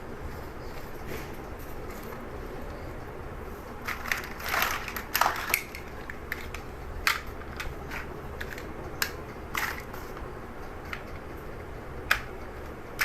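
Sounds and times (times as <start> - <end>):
plastic pieces rattling: 3.8 - 10.0
plastic bricks clicking together: 3.9 - 9.9.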